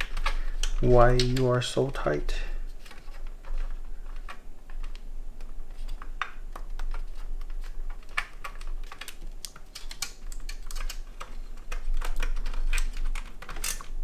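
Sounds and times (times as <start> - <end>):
plastic and metal clicks: 0.0 - 1.6, 2.7 - 14.0
low steady hum: 0.0 - 9.4.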